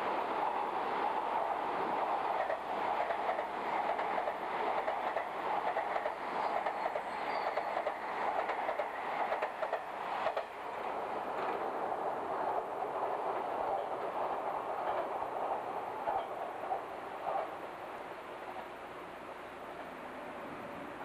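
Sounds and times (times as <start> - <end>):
electric train passing: 0.0 - 21.0.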